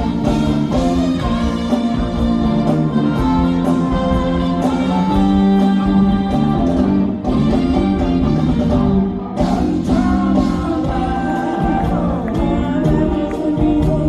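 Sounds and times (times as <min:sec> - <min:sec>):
bass: 0:00.0 - 0:14.0
drums with steady beat: 0:00.0 - 0:14.0
electric guitar: 0:00.0 - 0:14.0.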